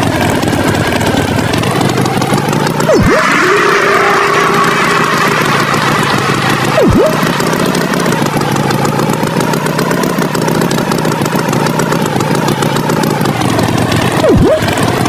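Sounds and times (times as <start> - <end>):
tractor engine running: 0.0 - 15.0
swooping tone: 2.7 - 8.3, 14.1 - 15.0.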